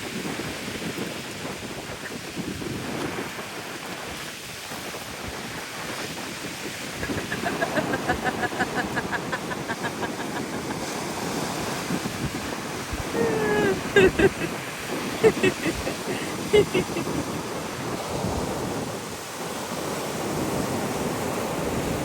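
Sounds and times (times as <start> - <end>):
sea waves breaking: 5.2 - 22.0.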